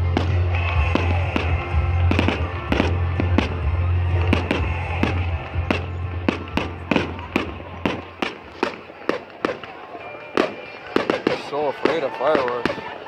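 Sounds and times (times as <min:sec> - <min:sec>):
low rumble: 0:00.0 - 0:08.2
fireworks bangs and cracks: 0:00.0 - 0:13.0.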